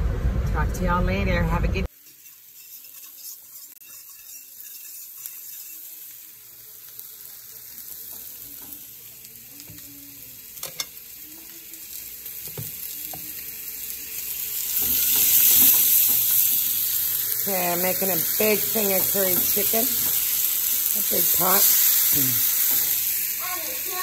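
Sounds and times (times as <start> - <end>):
onions sizzling in hot oil: 1.9 - 24.0.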